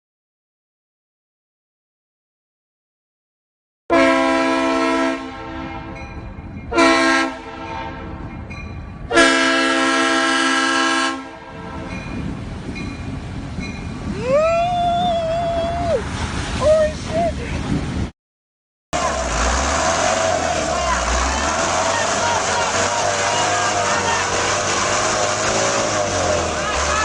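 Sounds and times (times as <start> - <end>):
multi-tone air horn blasts: 3.9 - 6.0, 6.7 - 8.1, 9.1 - 11.9.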